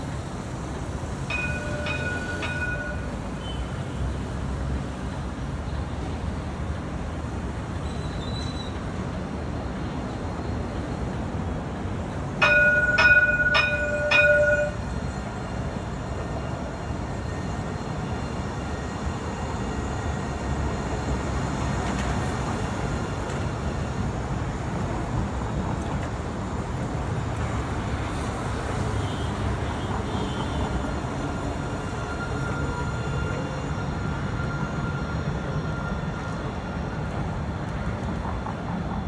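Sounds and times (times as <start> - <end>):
tram rumbling: 0.0 - 39.0
bell ringing: 1.3 - 3.5, 12.4 - 15.0.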